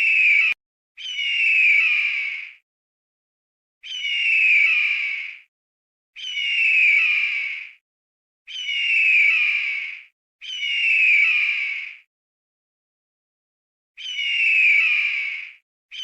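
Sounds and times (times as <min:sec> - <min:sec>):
bird squawking call: 0:00.0 - 0:02.6, 0:06.2 - 0:07.8, 0:08.5 - 0:12.1, 0:14.0 - 0:16.0.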